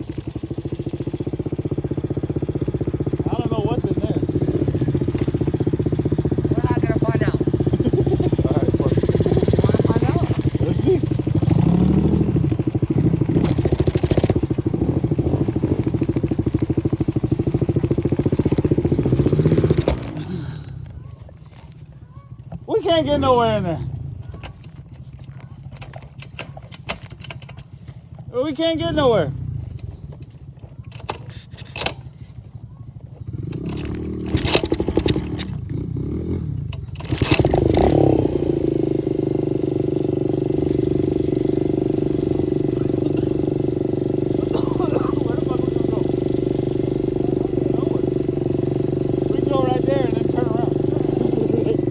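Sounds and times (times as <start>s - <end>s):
engine clattering knocks: 0.0s - 20.3s
dirt bike engine running: 0.0s - 51.9s.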